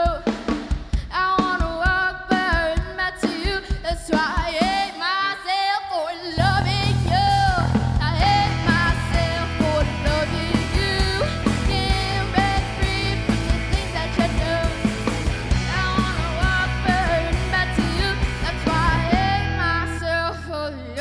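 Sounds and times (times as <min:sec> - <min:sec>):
live rock band playing: 0:06.4 - 0:21.0.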